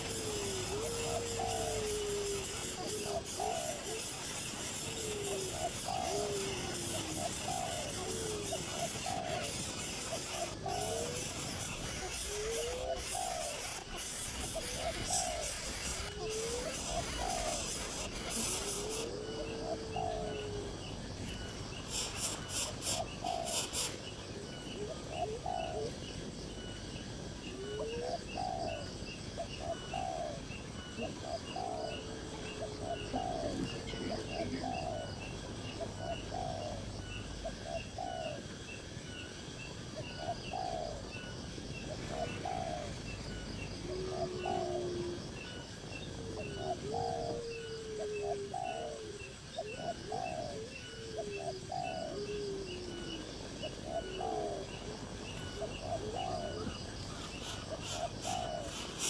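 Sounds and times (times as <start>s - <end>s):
rapid high-pitched ticking chirp: 0.0s - 25.0s, 25.6s - 27.5s, 28.2s - 43.9s, 48.7s - 59.0s
birds calling low hooked notes: 0.0s - 26.9s, 40.1s - 59.0s.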